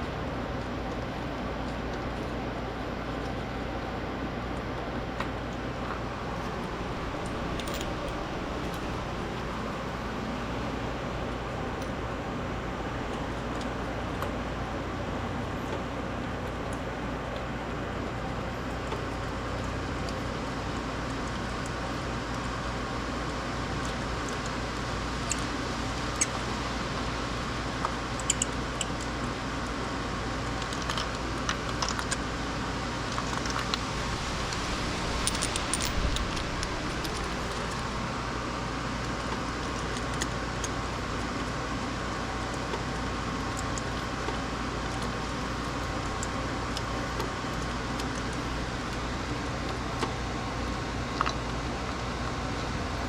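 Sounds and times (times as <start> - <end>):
steady background hum: 0.0 - 53.0
hand tools clicking and clinking: 35.2 - 37.9.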